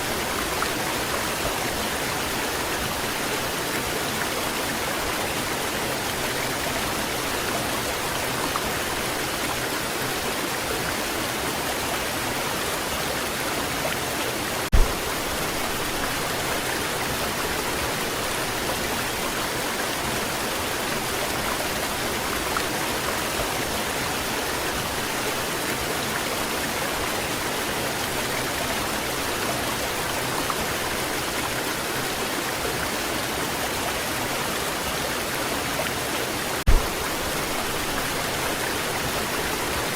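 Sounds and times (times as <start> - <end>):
waterfall rushing: 0.0 - 39.9
brief low thump: 14.7 - 15.1, 36.7 - 37.2.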